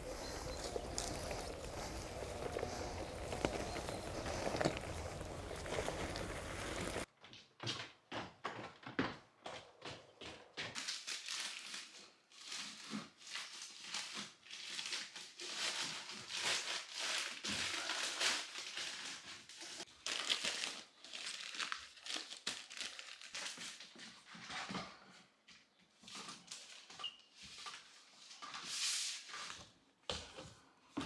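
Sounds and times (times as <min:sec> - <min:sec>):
rustling and crinkling: 0:00.0 - 0:07.1.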